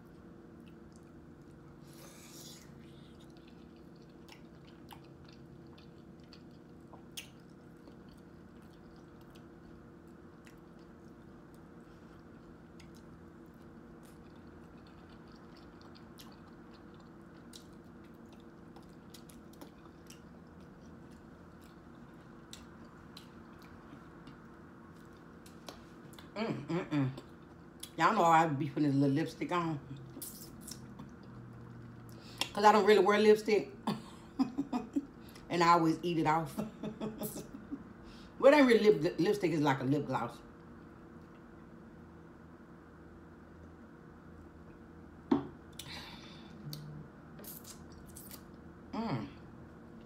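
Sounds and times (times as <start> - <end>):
person chewing food: 0.0 - 26.4, 27.2 - 28.0, 30.2 - 32.6
steady low hum: 0.0 - 50.0.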